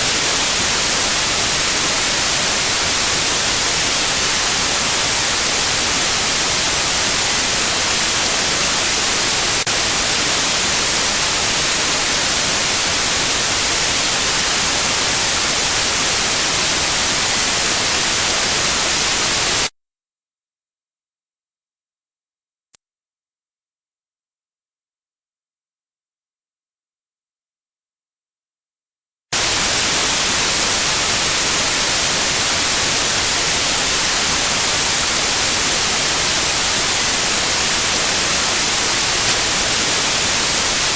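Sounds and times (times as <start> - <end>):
white noise hiss: 0.0 - 19.7, 29.4 - 40.9
high-pitched sine tone: 0.0 - 40.9.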